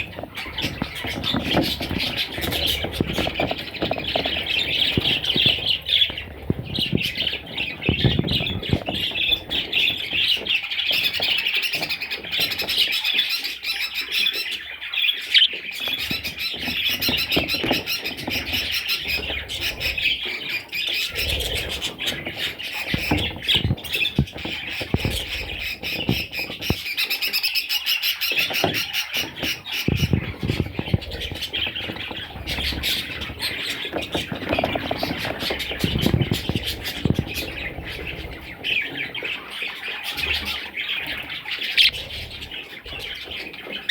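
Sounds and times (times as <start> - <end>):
low knocks and rustles: 0.0 - 11.3
budgerigars chattering and squawking: 0.0 - 43.9.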